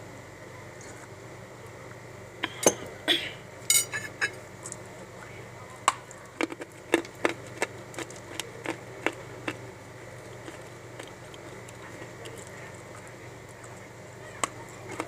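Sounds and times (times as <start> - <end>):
clay crunching as chewed: 6.4 - 15.0.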